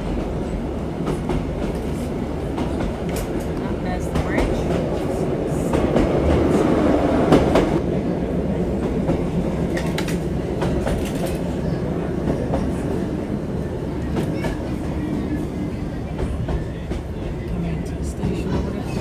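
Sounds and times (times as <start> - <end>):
train low rumble: 0.0 - 19.0.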